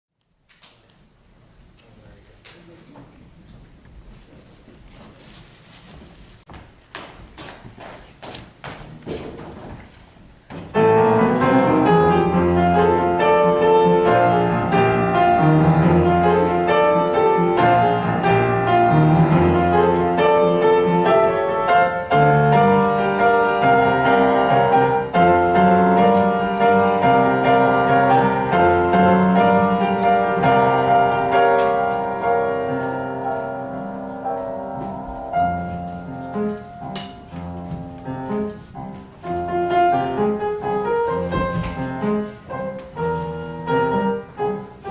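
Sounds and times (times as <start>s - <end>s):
piano music with bass line: 10.5s - 44.9s.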